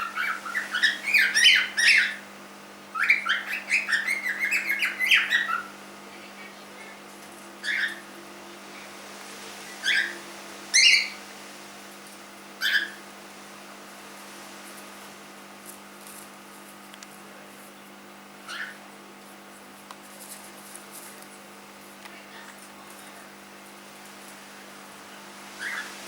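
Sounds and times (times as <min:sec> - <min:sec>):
cockatiel chirping: 0:00.0 - 0:02.2, 0:02.9 - 0:05.7, 0:07.6 - 0:08.1, 0:09.8 - 0:11.2, 0:12.6 - 0:13.0, 0:18.4 - 0:18.8, 0:25.6 - 0:25.9
cockatiel short calls: 0:00.0 - 0:02.2, 0:07.6 - 0:08.0, 0:09.8 - 0:11.2, 0:12.6 - 0:13.0, 0:18.4 - 0:18.8, 0:25.6 - 0:25.9.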